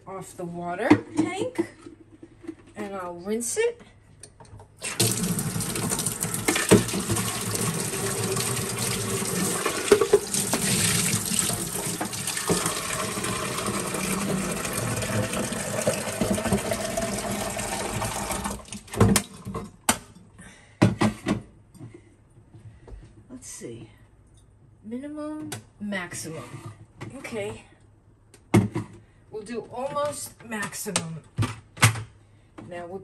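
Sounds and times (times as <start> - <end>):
tap water splashing into tank: 4.9 - 19.2.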